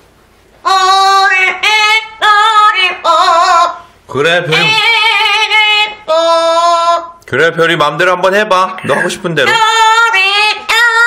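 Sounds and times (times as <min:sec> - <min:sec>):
parrot singing: 0:00.7 - 0:07.2.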